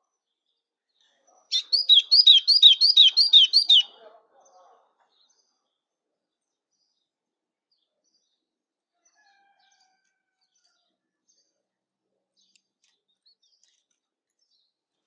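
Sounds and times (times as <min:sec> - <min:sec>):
faint songbird chirps: 0:01.5 - 0:03.9
whistled bird notes: 0:01.5 - 0:03.9.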